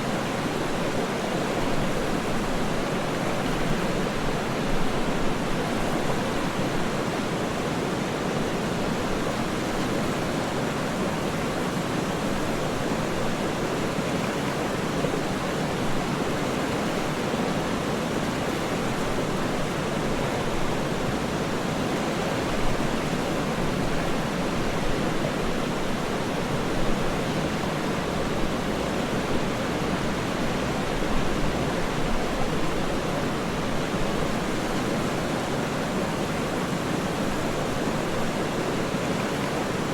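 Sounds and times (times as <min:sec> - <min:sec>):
waterfall rushing: 0:13.5 - 0:39.9.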